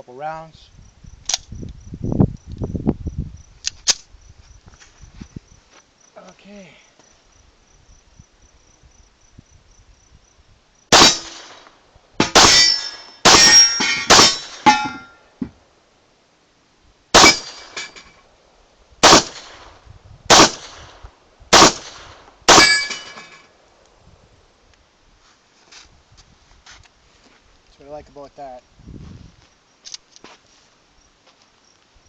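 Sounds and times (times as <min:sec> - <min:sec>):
pistol shots: 0:10.9 - 0:14.8, 0:17.2 - 0:17.8, 0:19.0 - 0:19.7, 0:20.3 - 0:23.1.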